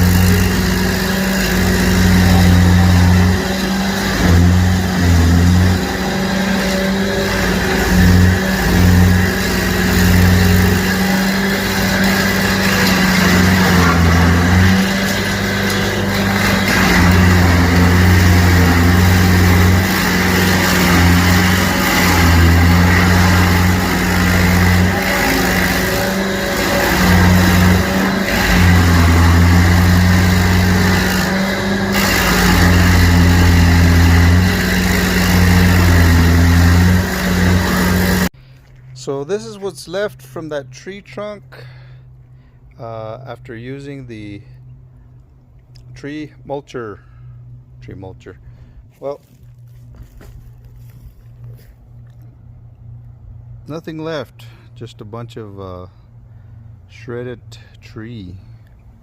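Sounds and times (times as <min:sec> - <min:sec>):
stump grinder running: 0:00.0 - 0:38.4, 0:49.2 - 0:53.2.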